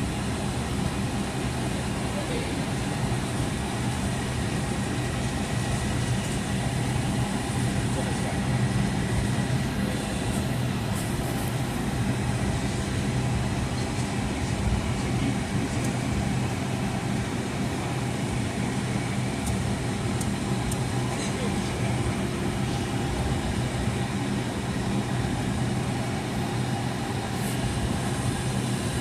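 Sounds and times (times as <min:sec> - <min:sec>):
jet engines idling hum: 0:00.0 - 0:29.0.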